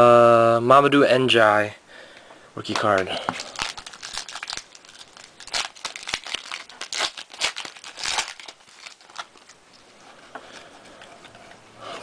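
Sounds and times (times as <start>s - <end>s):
foil wrapper crinkling and tearing: 2.7s - 10.0s
cards being handled: 2.7s - 11.6s.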